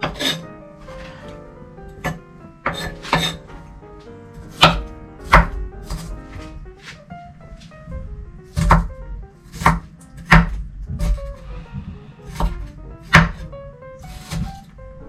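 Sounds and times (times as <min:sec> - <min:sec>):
knife chopping on cutting board: 0:00.0 - 0:00.4, 0:02.0 - 0:03.4, 0:04.4 - 0:06.2, 0:08.5 - 0:11.4, 0:12.3 - 0:14.7
background music: 0:00.0 - 0:15.0.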